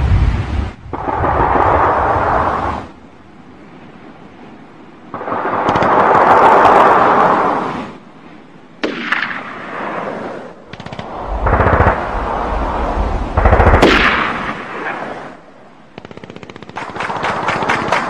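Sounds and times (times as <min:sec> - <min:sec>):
gunshots: 0:05.1 - 0:07.5, 0:08.8 - 0:12.2, 0:13.4 - 0:18.0
heavy deep explosions: 0:10.9 - 0:14.9.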